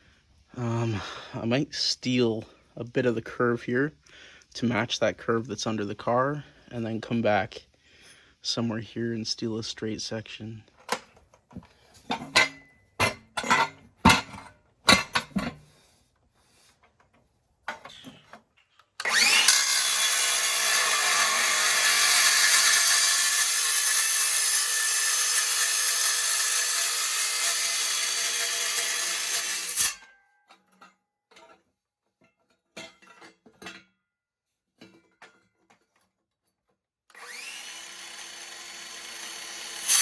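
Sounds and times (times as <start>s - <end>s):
power saw cutting steel pipe: 19.0s - 30.1s, 37.1s - 40.0s.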